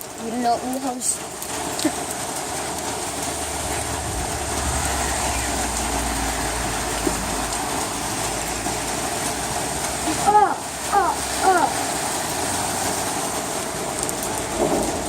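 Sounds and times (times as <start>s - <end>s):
heavy rain pouring: 0.0s - 15.0s
low rumble: 3.4s - 6.8s.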